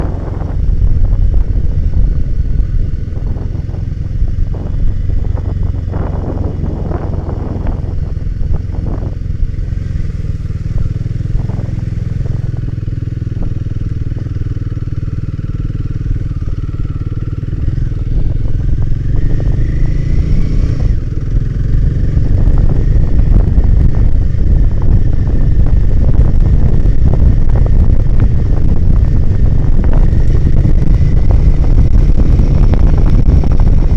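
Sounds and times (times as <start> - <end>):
motorcycle engine running: 0.0 - 33.9
wind noise on microphone: 0.0 - 33.9
clatter: 15.9 - 33.9.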